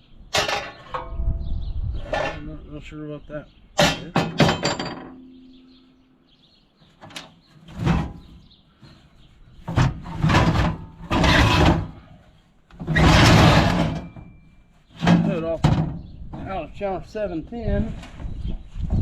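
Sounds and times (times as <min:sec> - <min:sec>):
metal parts scraping and clunking: 0:00.3 - 0:01.2, 0:02.0 - 0:02.6, 0:03.8 - 0:05.4, 0:06.9 - 0:16.1.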